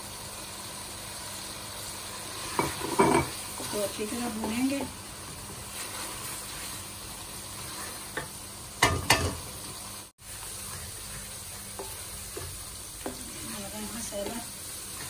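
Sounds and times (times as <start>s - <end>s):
masala sizzling in oil: 0.0s - 15.0s
wooden spoon stirring: 10.3s - 15.0s.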